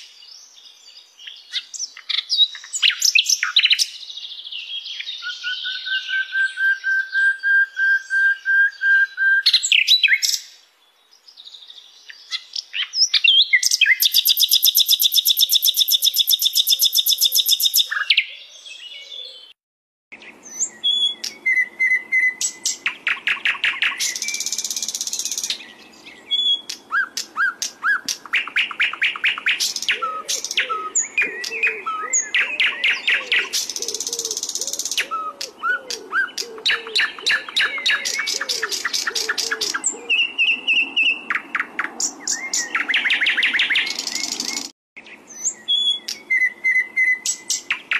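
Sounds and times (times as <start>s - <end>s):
flycatcher singing: 11.2s - 19.3s, 20.2s - 47.9s.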